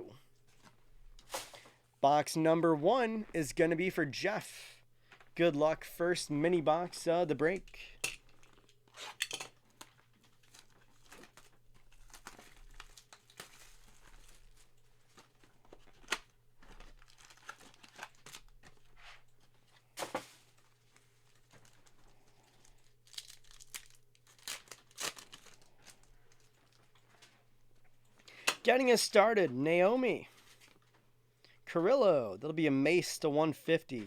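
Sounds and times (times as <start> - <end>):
cardboard and plastic tearing: 8.3 - 27.1.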